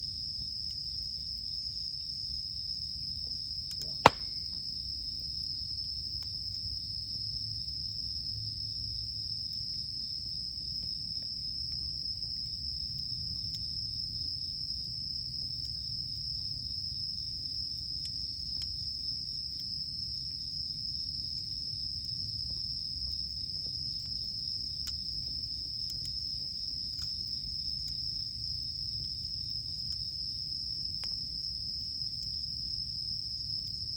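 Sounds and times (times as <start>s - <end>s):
crickets trilling: 0.0s - 33.9s
campfire crackling: 3.5s - 8.3s, 15.3s - 33.9s
sharp pop: 3.8s - 4.4s.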